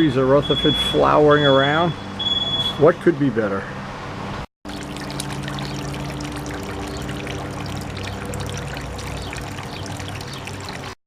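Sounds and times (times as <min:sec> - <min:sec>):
water pouring and trickling: 0:04.6 - 0:11.0.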